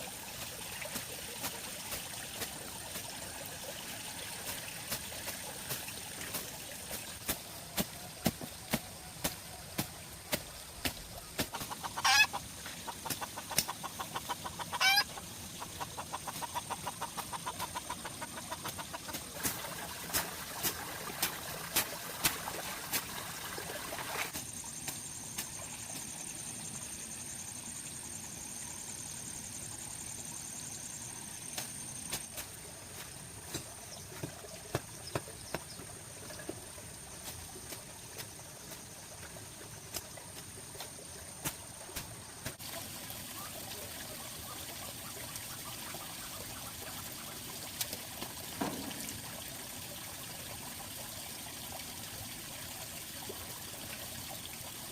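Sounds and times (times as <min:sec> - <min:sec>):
bird calls: 0:10.6 - 0:19.3.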